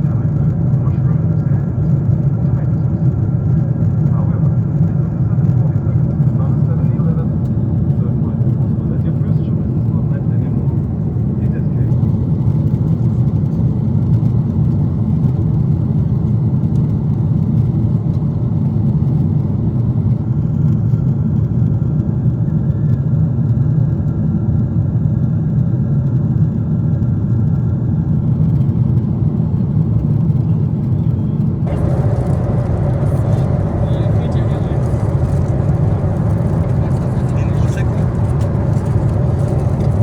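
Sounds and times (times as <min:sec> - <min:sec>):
airliner cabin rumble: 0:27.0 - 0:40.0.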